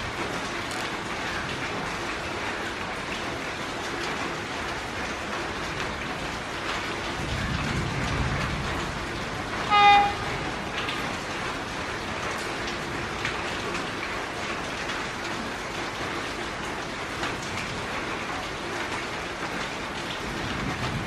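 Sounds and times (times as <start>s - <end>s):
heavy rain hissing: 0.0s - 21.0s
electric train rumbling: 4.0s - 21.0s
train horn toot: 9.6s - 10.7s.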